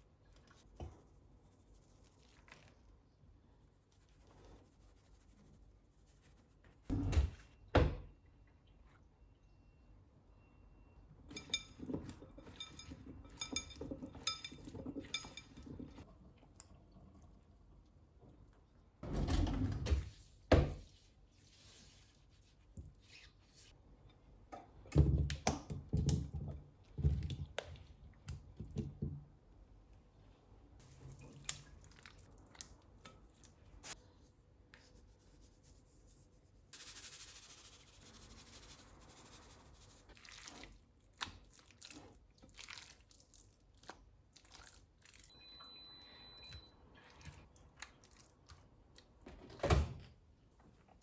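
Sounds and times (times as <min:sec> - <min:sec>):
kitchen items knocking and clunking: 0:11.3 - 0:16.0.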